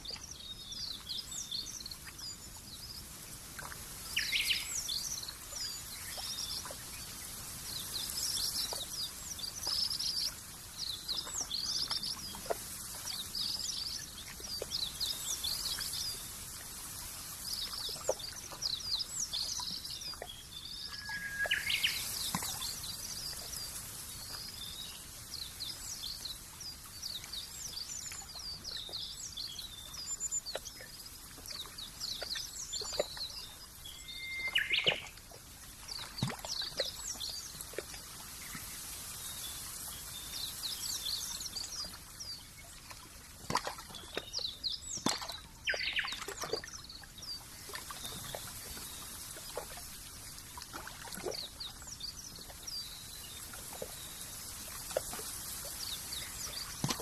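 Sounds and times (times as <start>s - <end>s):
small birds chirping: 0.0s - 50.1s
faint outdoor hiss: 0.0s - 57.0s
lower bird calls: 20.8s - 22.7s, 33.9s - 35.1s.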